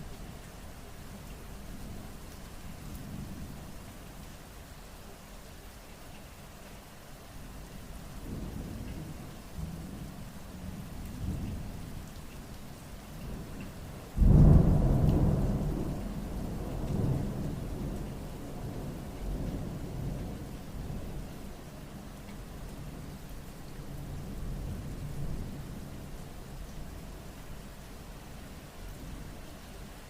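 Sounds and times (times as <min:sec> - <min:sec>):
steady rain: 0:00.0 - 0:30.0
thunder rumbling: 0:14.2 - 0:21.2.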